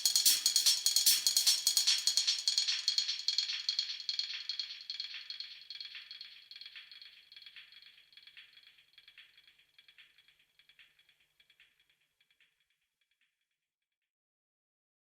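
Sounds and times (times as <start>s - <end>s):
rattling shaker percussion: 0.0s - 11.7s.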